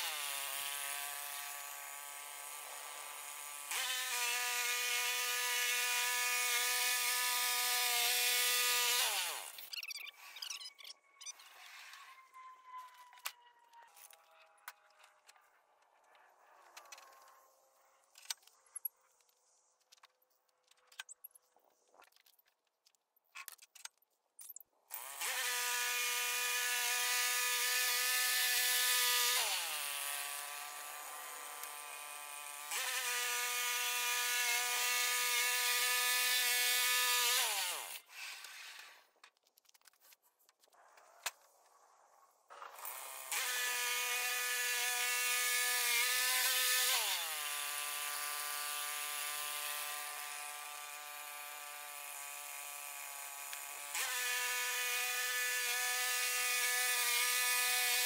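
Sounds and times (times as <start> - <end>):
power drill motor whining: 0.0 - 18.2, 24.9 - 39.1, 42.6 - 58.0.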